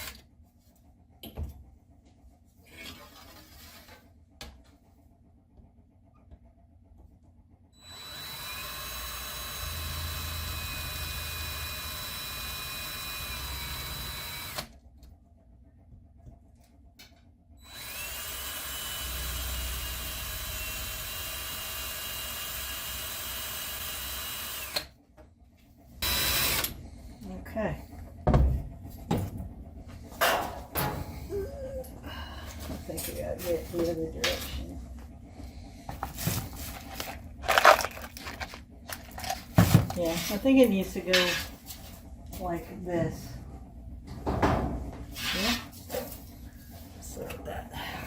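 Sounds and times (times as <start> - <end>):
electric drill whining into aluminum: 7.8 - 14.7, 17.6 - 24.9, 26.0 - 26.7.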